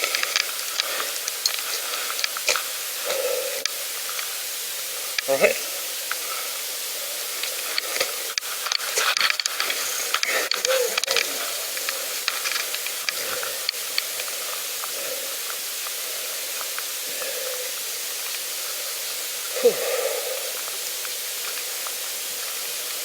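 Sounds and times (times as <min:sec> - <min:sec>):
bicycle crackling and clicking: 0:00.0 - 0:17.3
bicycle riding hiss: 0:00.0 - 0:23.0.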